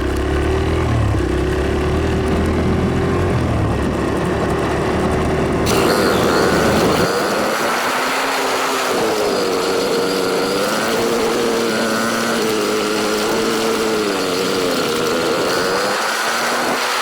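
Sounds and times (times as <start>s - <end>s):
dirt bike engine running: 0.0s - 17.0s.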